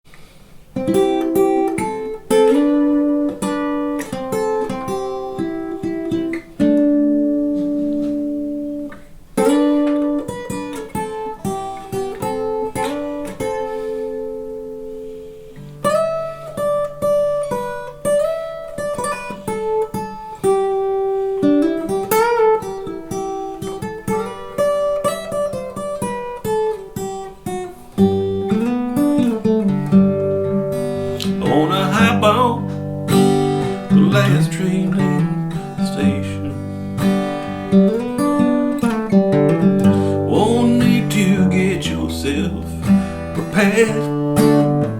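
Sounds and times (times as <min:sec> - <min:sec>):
acoustic guitar picking: 0:00.1 - 0:44.9.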